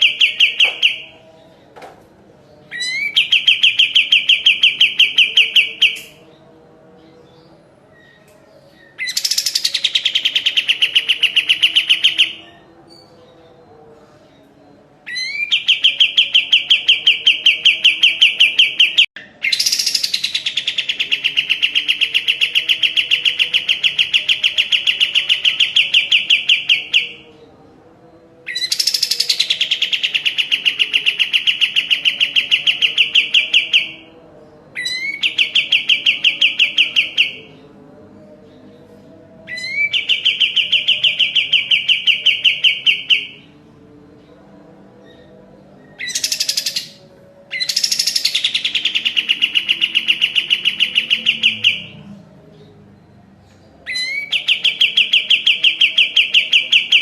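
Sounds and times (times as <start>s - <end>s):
bulbul singing rapid repeated notes: 0.0s - 1.2s, 2.7s - 6.3s, 9.0s - 13.0s, 15.1s - 27.3s, 28.6s - 34.1s, 34.9s - 43.5s, 46.0s - 52.0s, 53.8s - 57.0s.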